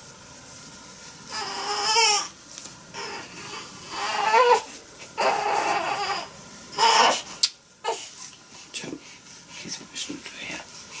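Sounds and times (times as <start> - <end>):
newborn baby crying: 1.3 - 2.3, 3.0 - 8.1.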